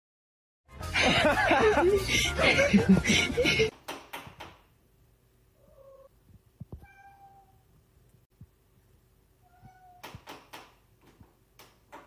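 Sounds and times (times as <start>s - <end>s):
cat meowing: 5.6s - 6.1s, 6.7s - 7.6s, 9.4s - 10.2s.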